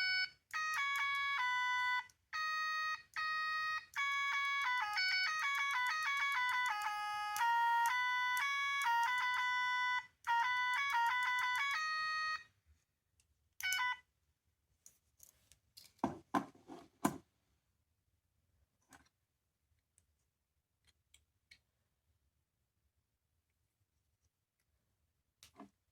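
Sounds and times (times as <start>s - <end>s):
electronic toy beeping melody: 0.0s - 12.5s, 13.6s - 14.1s.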